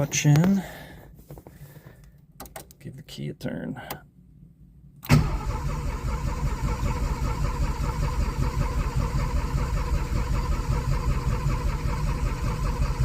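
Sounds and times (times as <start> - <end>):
car starter cranking: 5.0 - 10.6.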